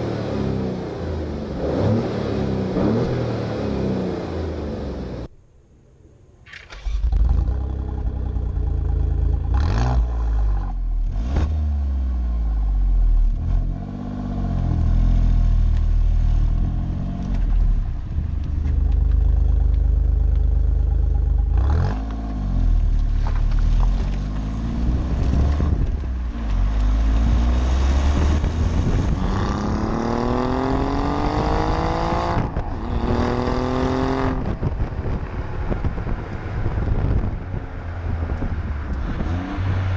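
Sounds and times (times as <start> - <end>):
car engine revving: 0.0 - 5.3, 18.4 - 39.9.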